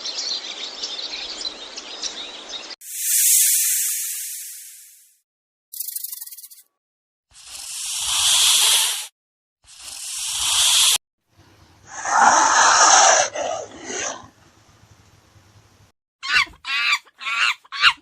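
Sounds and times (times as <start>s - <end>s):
snake hissing: 2.8s - 5.0s, 7.4s - 9.1s, 9.7s - 11.0s, 11.9s - 14.1s.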